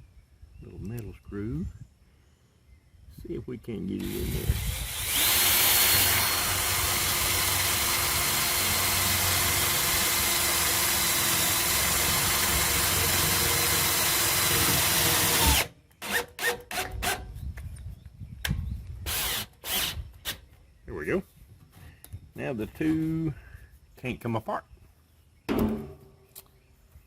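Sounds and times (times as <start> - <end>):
power drill driving screw into steel: 4.0 - 17.2, 19.1 - 20.4.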